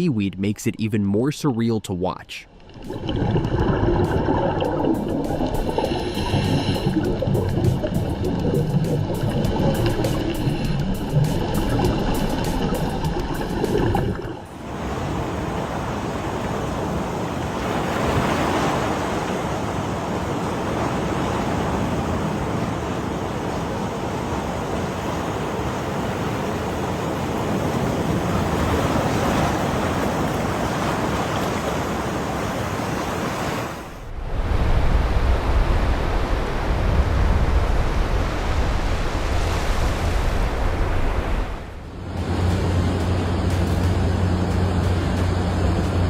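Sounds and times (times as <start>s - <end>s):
ocean surf washing ashore: 0.0s - 46.0s
wind rumble on microphone: 34.0s - 46.0s.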